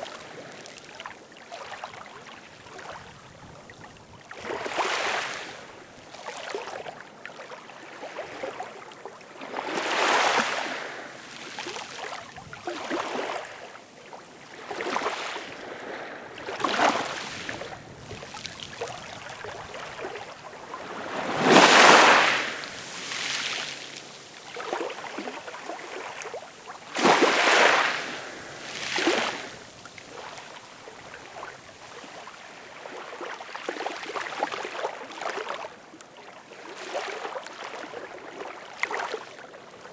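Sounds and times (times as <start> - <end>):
ocean waves washing in: 14.5 - 32.4.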